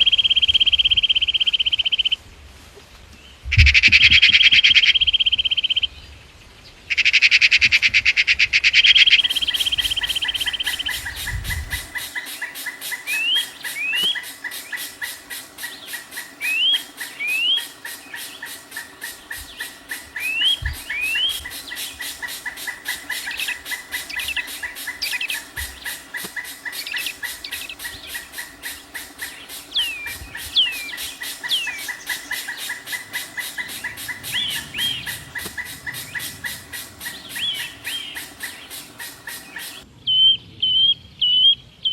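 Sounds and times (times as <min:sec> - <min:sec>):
fast-pulsing bird chorus: 0:08.8 - 0:39.9
bird buzzing trill: 0:09.0 - 0:39.8
short rising bird chirps: 0:09.2 - 0:39.8.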